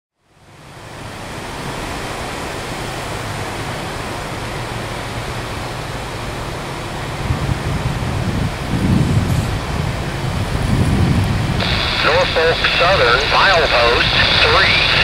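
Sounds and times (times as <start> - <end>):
distant diesel locomotive rumble: 0.4 - 15.0
wind rushing: 6.9 - 15.0.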